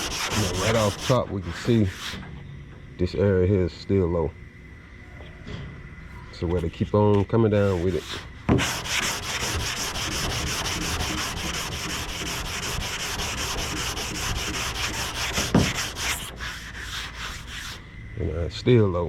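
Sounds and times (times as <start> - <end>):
sanding block strokes on panel: 0.0 - 2.2, 7.5 - 17.8.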